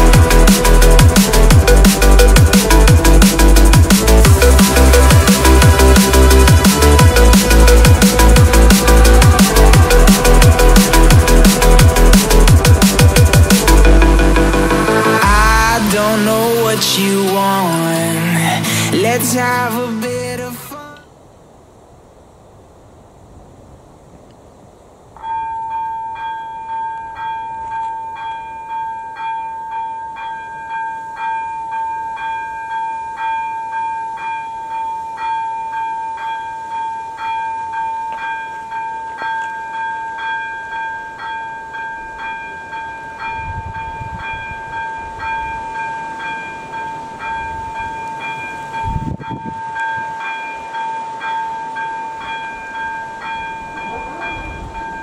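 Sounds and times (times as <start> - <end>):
level-crossing bell ringing: 25.2 - 55.0.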